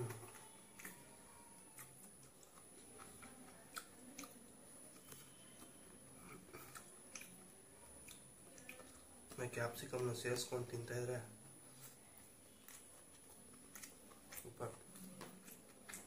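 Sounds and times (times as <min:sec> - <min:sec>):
person chewing food: 0:00.0 - 0:10.1, 0:11.4 - 0:16.0
soft mouth clicks: 0:06.2 - 0:07.4, 0:08.0 - 0:09.0.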